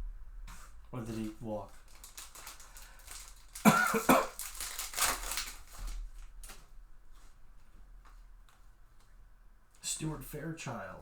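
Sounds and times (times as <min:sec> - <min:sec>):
person coughing: 0:03.6 - 0:04.4.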